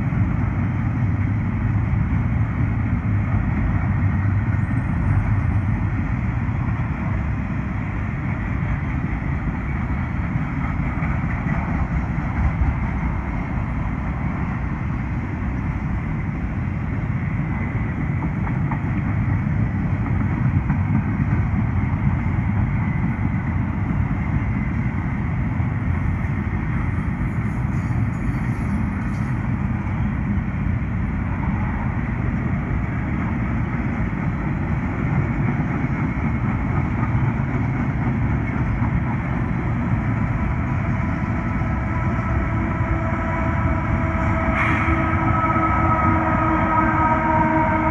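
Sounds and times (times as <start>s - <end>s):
freight train wheels rumbling: 0.0s - 47.9s.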